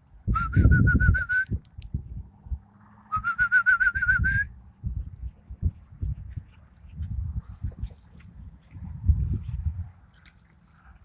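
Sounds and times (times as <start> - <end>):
trilled whistles: 0.3 - 1.6, 3.1 - 4.6.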